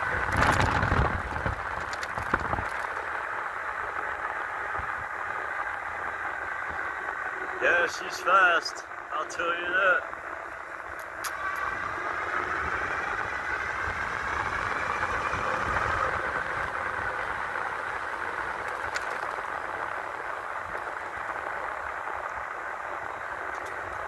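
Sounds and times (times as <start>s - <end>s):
wind rush: 0.0s - 7.3s
electric bike motor whine: 0.0s - 7.6s, 10.0s - 24.0s
road rumble: 0.0s - 24.0s.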